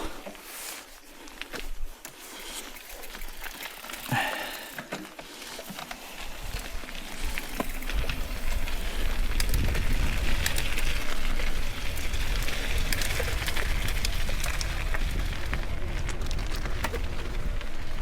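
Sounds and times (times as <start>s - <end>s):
bike tyres on wet dirt: 0.0s - 18.0s
wind on microphone: 6.4s - 18.0s.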